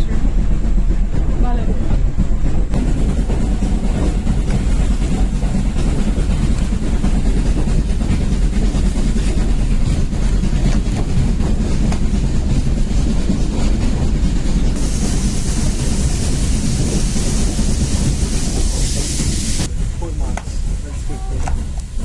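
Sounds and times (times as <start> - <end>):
train rumbling along track: 0.0 - 22.0.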